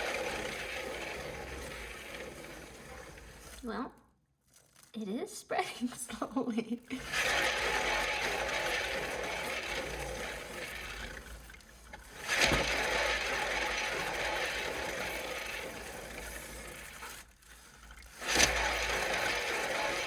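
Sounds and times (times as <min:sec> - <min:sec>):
turntable whirring and rattling: 0:00.0 - 0:03.6, 0:06.9 - 0:20.0.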